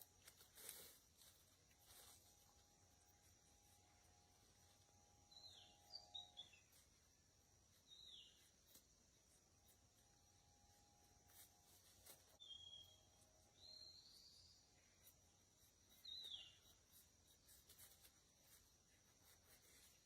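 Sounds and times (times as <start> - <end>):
bird chirping: 3.6 - 7.0, 7.7 - 9.4, 12.4 - 17.6.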